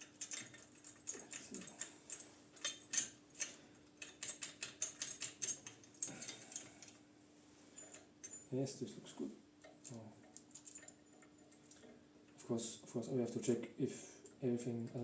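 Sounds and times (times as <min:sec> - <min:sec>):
small metal parts clicking: 0:00.0 - 0:07.0, 0:09.8 - 0:11.9
faint steady hum: 0:00.0 - 0:15.0.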